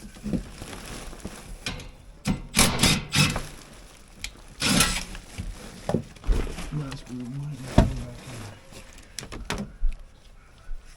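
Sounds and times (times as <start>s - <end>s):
cordless drill driving a screw: 2.6s - 3.5s, 4.6s - 5.1s.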